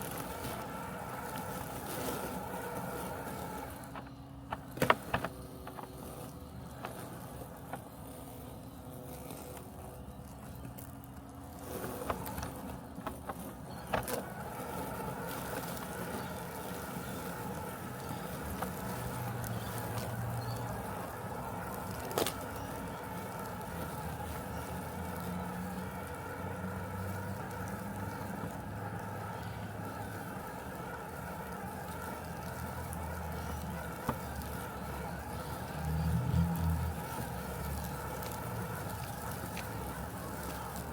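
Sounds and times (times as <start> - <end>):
robotic lawn mower humming: 0.0 - 40.9.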